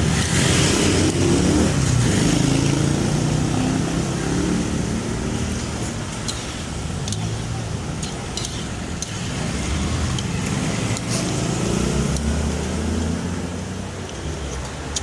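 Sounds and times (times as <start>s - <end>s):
sharp clicks: 12.1s - 12.4s.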